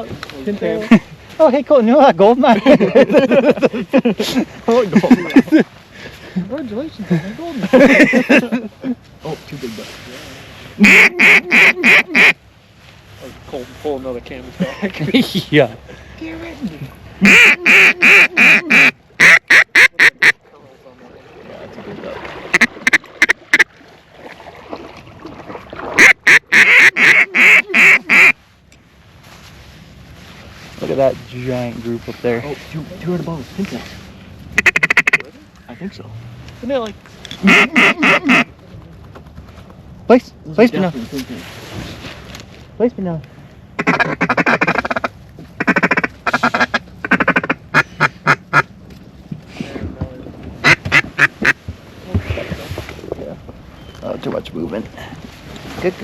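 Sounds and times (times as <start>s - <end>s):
duck call quacks: 10.8s - 12.4s, 17.2s - 20.4s, 22.5s - 23.7s, 26.0s - 28.4s, 34.6s - 35.3s, 37.4s - 38.5s, 43.8s - 48.7s, 50.6s - 51.6s.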